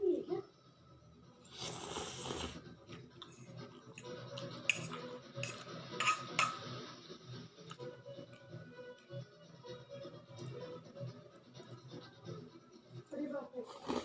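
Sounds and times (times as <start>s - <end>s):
cutlery clinking against dish: 4.0s - 6.8s.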